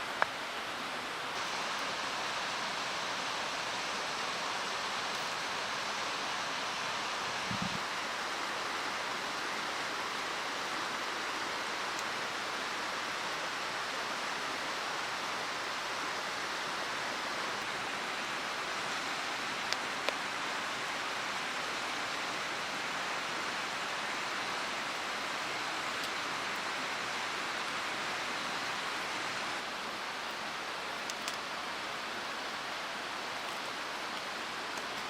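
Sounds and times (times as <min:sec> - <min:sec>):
mountain stream rushing: 0:00.0 - 0:35.0
small ticks: 0:31.0 - 0:31.5.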